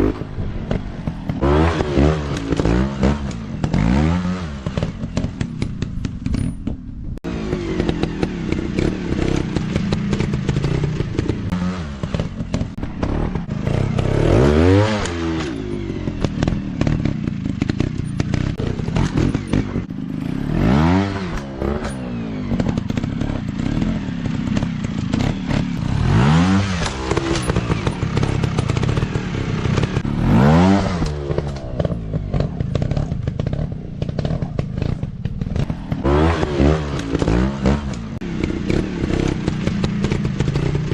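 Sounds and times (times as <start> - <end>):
motorcycle engines revving: 0.0 - 40.9.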